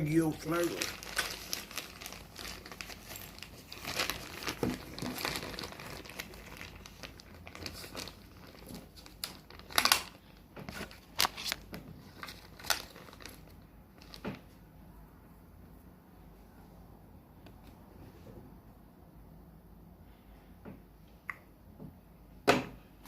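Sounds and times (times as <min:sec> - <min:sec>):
packaging crinkling: 0:00.0 - 0:14.4.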